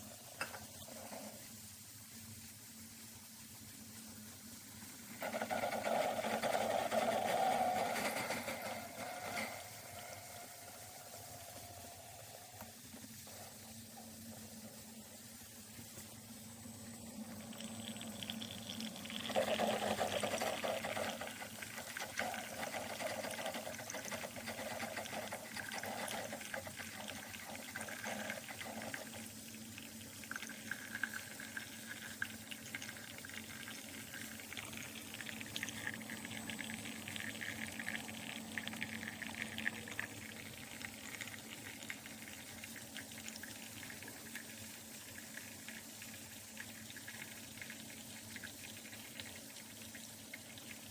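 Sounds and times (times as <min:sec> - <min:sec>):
coffee maker humming: 0:00.0 - 0:50.9
coffee trickling into a mug: 0:02.4 - 0:50.9.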